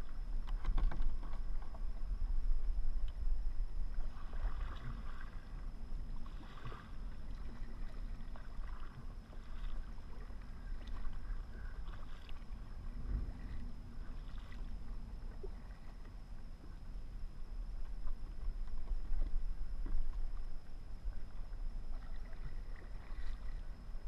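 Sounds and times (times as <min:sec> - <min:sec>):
steady low rumble: 0:00.0 - 0:24.0
paddle strokes splashing in water: 0:04.0 - 0:05.5, 0:06.2 - 0:14.7, 0:21.9 - 0:23.8.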